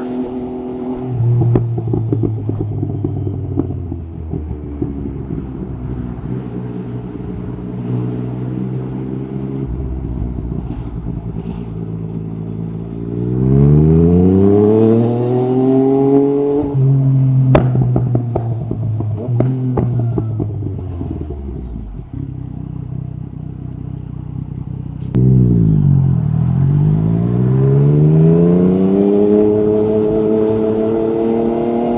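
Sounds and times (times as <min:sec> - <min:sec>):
motorcycle engine revving: 0:00.0 - 0:31.9
exhaust crack: 0:09.5 - 0:12.9, 0:17.4 - 0:26.5.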